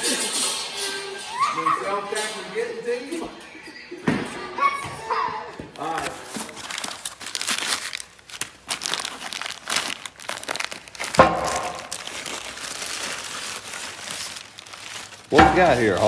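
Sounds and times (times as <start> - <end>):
packaging being torn and crinkled: 6.0 - 16.0.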